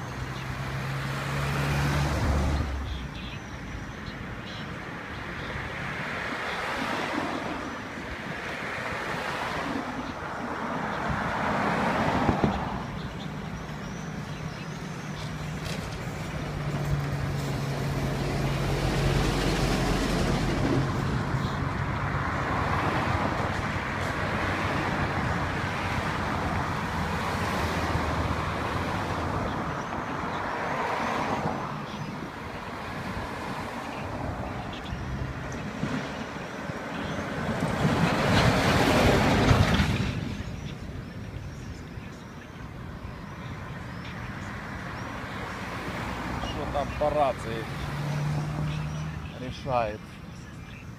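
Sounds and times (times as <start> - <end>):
cars and trucks passing: 0.0 - 50.9
heavy vehicle engine hum: 9.8 - 30.5.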